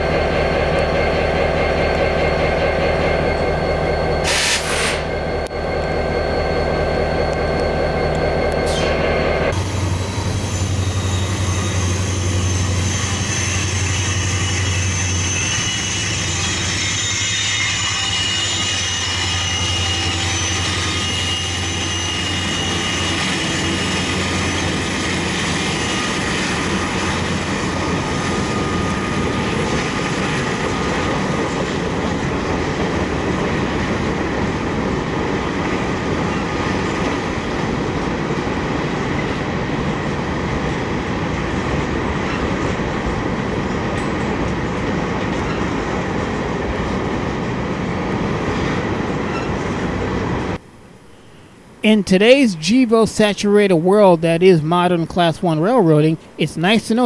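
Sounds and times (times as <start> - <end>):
high wheel squeal: 0.0 - 31.3, 49.2 - 50.5
freight train deep rumble: 0.0 - 50.6
diesel locomotive engine drone: 0.0 - 56.8
high hissing bursts: 4.2 - 5.1.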